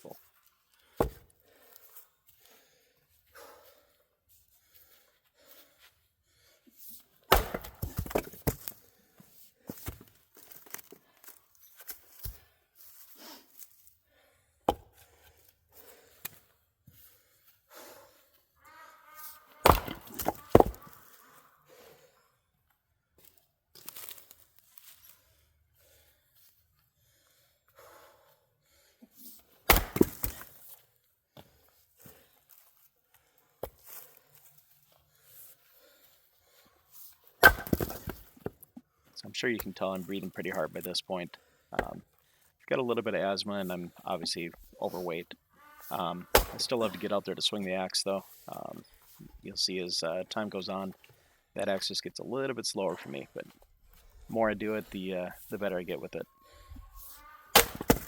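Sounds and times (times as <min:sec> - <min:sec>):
axe striking firewood: 0:01.0 - 0:01.3, 0:07.3 - 0:08.8, 0:14.6 - 0:15.1, 0:19.6 - 0:21.0, 0:29.6 - 0:30.7, 0:37.4 - 0:38.5, 0:41.8 - 0:42.0, 0:46.3 - 0:46.7, 0:57.5 - 0:58.0
wood cracking and tearing: 0:19.6 - 0:21.0, 0:57.5 - 0:58.0.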